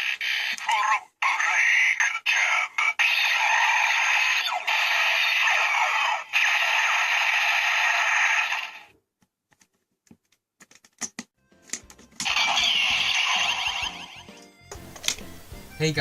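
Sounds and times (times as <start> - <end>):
toy speaker electronic music: 0.0 - 8.9, 12.2 - 14.5.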